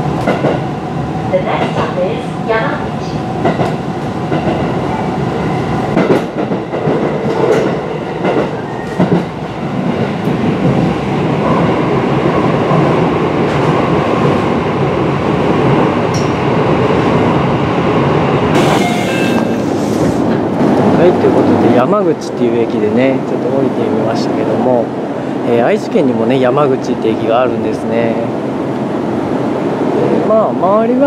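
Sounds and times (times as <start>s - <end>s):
wheels rumbling on rail: 0.0s - 31.0s.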